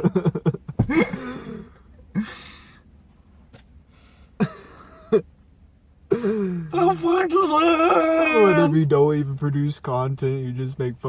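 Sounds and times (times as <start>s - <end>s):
man coughing bursts: 0.0s - 2.6s, 4.4s - 5.2s, 6.1s - 6.7s
man making throaty warble: 6.2s - 8.8s.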